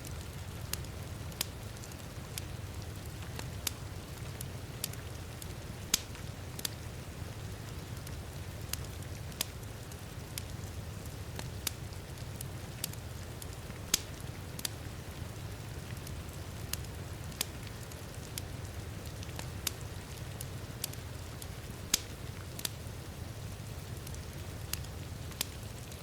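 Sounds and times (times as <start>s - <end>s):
wood fire crackling: 0.0s - 26.0s
fire pops: 4.8s - 6.7s, 12.8s - 14.8s, 15.8s - 22.8s.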